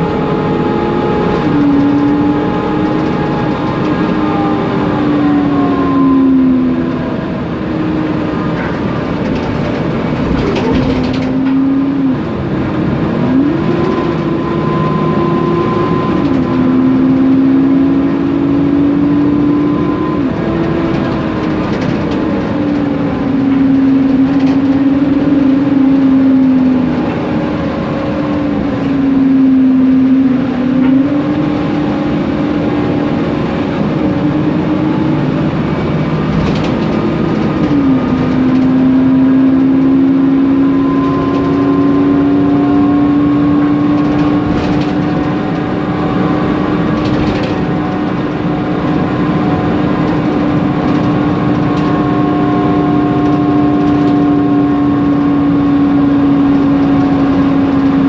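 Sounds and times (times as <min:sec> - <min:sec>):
bus engine and cooling fan drone: 0:00.0 - 0:58.0.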